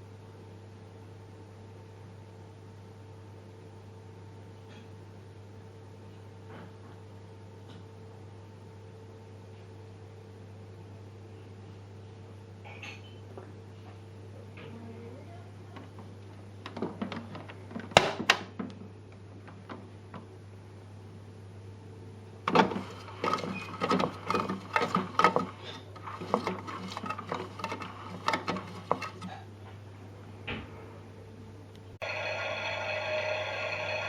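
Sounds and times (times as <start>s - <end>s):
steady low hum: 0.0s - 34.0s
hard plastic clicking and clattering: 22.5s - 29.3s.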